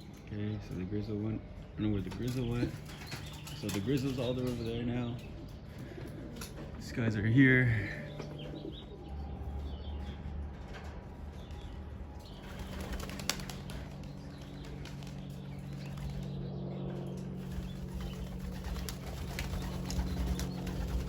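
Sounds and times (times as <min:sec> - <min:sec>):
pigeons cooing: 0:02.0 - 0:06.8, 0:17.1 - 0:21.0
pigeon wings flapping: 0:12.4 - 0:16.3, 0:17.4 - 0:21.0.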